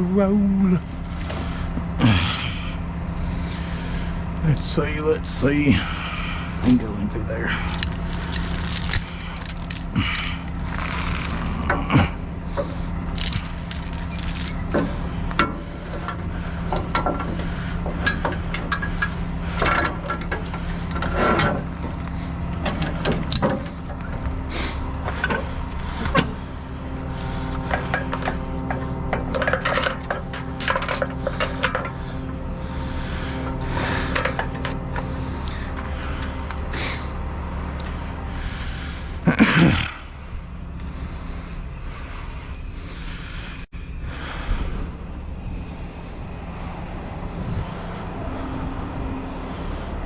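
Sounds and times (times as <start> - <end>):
truck engine idling: 0.0 - 50.0
metal rigging clinking: 7.5 - 11.6, 13.0 - 14.8, 18.1 - 24.2, 29.3 - 32.4, 34.0 - 35.0.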